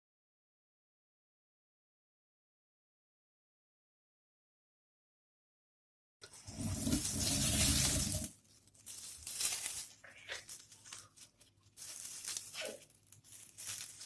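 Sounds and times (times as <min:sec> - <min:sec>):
paper or plastic crinkling: 0:06.4 - 0:14.0.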